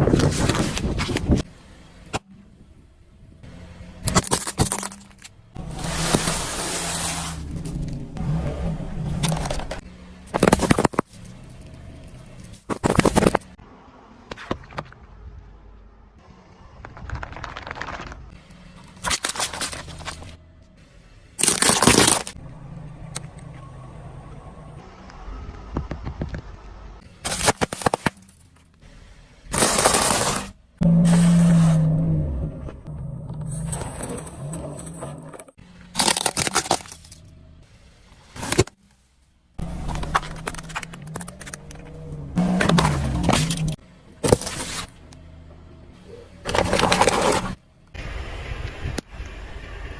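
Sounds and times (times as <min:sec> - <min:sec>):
objects crunching under car: 0:09.0 - 0:13.6, 0:21.4 - 0:22.4, 0:27.2 - 0:28.6, 0:29.5 - 0:37.3, 0:39.6 - 0:45.0, 0:46.4 - 0:47.6
vehicle engine running low: 0:22.4 - 0:27.2.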